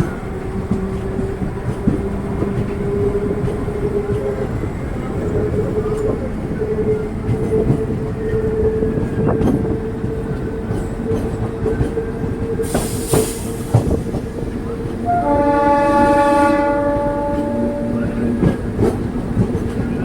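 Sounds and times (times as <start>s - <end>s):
train horn: 15.0s - 18.6s.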